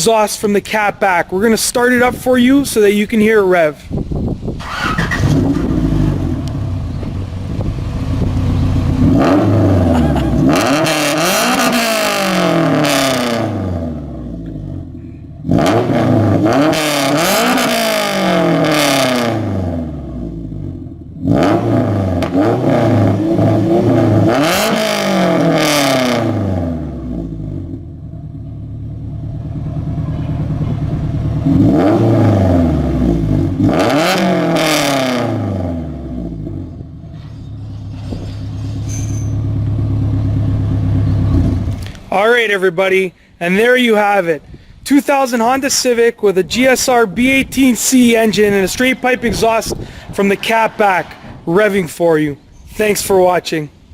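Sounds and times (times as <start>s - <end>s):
car engine revving: 4.5s - 38.8s, 39.4s - 42.0s, 46.6s - 52.7s.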